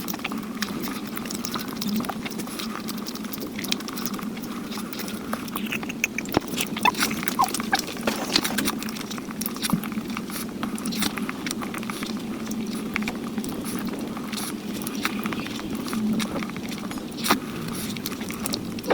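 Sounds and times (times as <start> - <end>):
chewing with wet clicks: 0.0 - 18.9.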